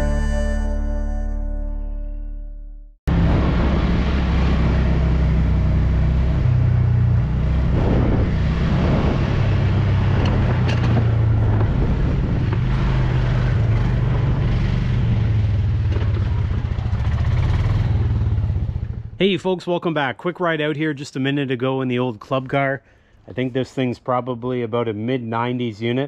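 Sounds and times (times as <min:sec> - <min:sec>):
golf cart motor running: 0:03.5 - 0:19.1
knocks and rattles: 0:09.8 - 0:14.3.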